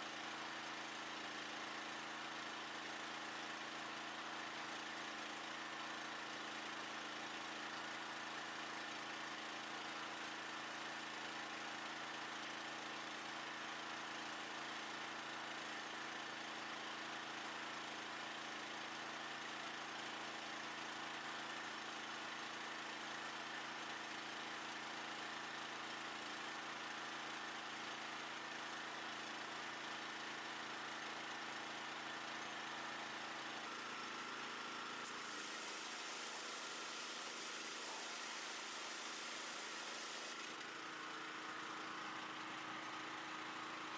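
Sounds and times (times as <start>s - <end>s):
engine running steadily: 0.0s - 43.9s
steady hiss: 35.1s - 40.4s.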